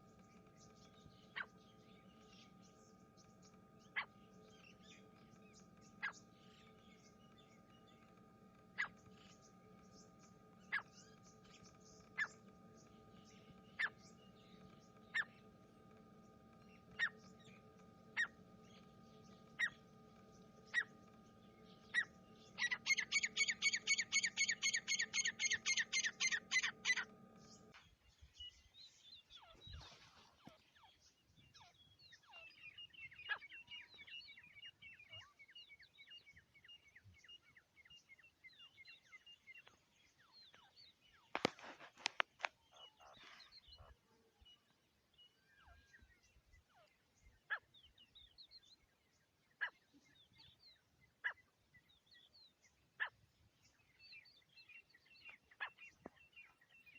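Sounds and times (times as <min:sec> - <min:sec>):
francolin calling: 0:00.0 - 0:27.7
steady hum: 0:00.0 - 0:27.9.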